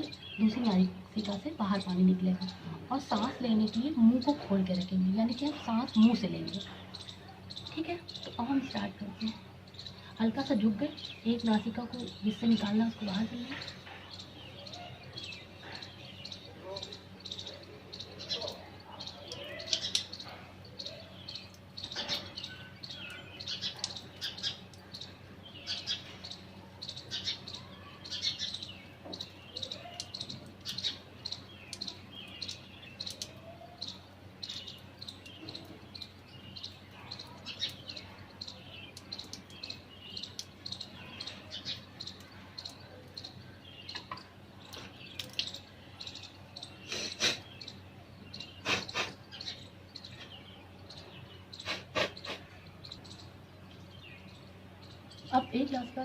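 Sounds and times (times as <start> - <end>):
small birds chirping: 0.0 - 56.0
steady low hum: 0.0 - 56.0
sharp clicks: 45.1 - 45.6.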